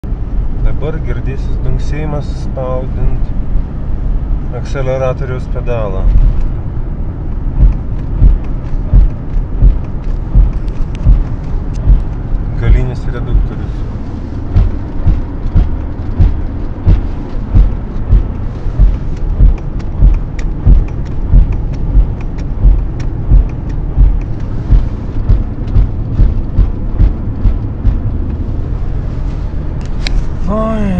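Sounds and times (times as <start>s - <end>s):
low car rumble: 0.0s - 30.9s
drivetrain thumping: 5.9s - 30.2s.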